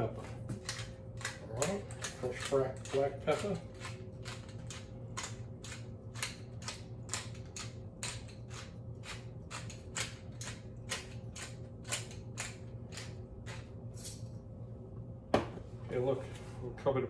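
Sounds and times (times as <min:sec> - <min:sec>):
pepper mill grinding: 0:01.2 - 0:14.2.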